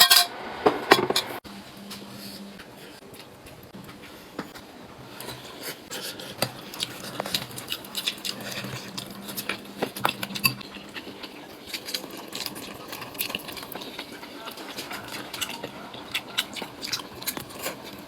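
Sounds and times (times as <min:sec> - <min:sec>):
utensils clinking on dishes: 0:00.0 - 0:01.4.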